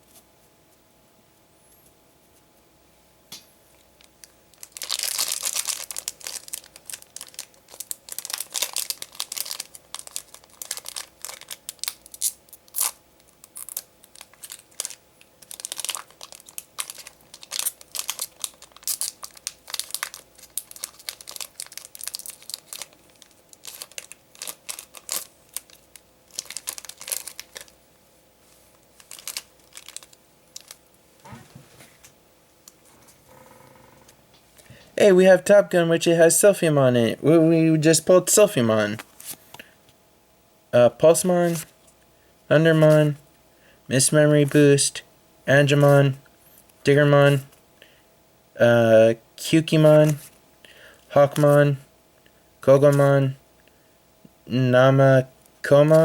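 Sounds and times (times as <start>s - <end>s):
foil pack crinkling: 4.0s - 27.8s, 28.5s - 30.9s, 49.6s - 51.7s, 52.7s - 53.2s, 55.7s - 56.0s
foil pack tearing: 4.6s - 27.8s, 29.0s - 30.8s
cards being handled: 38.9s - 39.6s, 41.5s - 41.7s, 49.8s - 50.4s, 51.2s - 51.6s, 52.8s - 53.1s.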